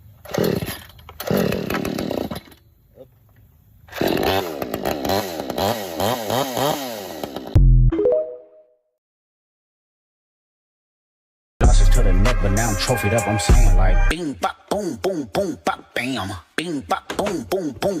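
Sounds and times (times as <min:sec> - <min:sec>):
chainsaw revving: 0:00.2 - 0:02.6, 0:03.9 - 0:07.6.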